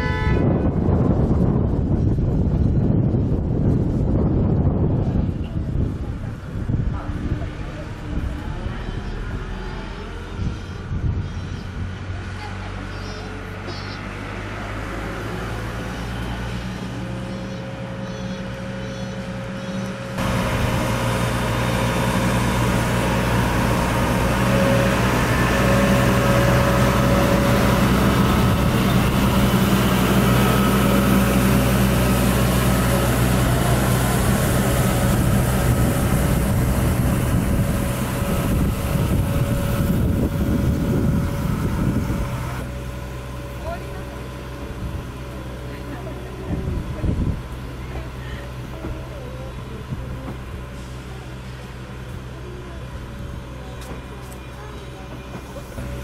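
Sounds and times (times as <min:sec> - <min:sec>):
diesel engine humming: 0:00.0 - 0:56.0
wheels clattering on rails: 0:17.0 - 0:56.0.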